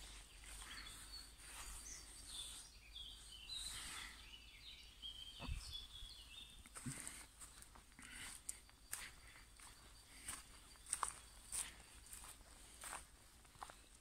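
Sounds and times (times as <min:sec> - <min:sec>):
faint birdsong: 0:00.0 - 0:14.0
soft thump: 0:05.4 - 0:05.7.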